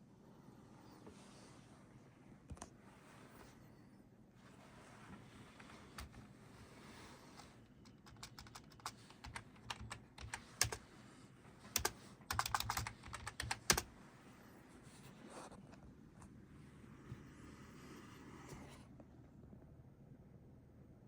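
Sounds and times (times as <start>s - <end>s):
quick irregular clicks and taps: 7.8s - 10.8s, 11.7s - 13.9s.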